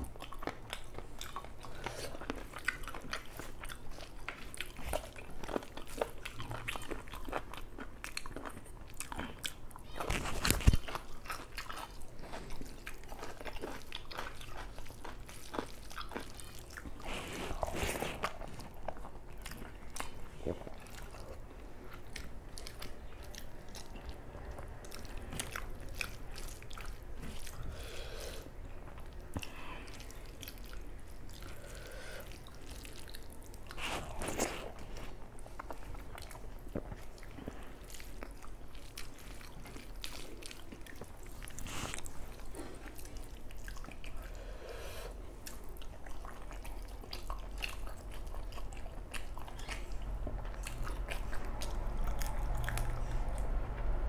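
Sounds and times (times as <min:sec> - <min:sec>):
chewing and wet mouth clicks: 0:00.0 - 0:17.0, 0:28.7 - 0:44.3, 0:45.4 - 0:53.6.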